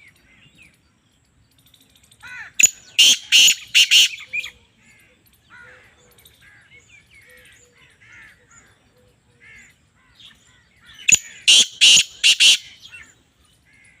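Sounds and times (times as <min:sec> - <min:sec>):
small birds chirping: 0:00.0 - 0:14.0
francolin harsh rasping call: 0:02.2 - 0:06.0, 0:10.8 - 0:14.0.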